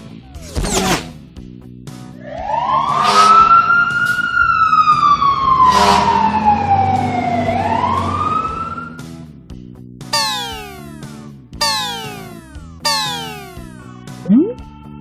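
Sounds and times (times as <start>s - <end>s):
siren wailing: 2.3s - 9.0s, 10.2s - 11.0s, 11.6s - 14.5s.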